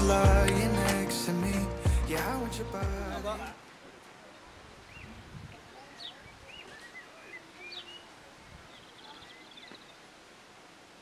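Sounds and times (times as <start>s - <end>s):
birds chirping: 4.2s - 10.2s.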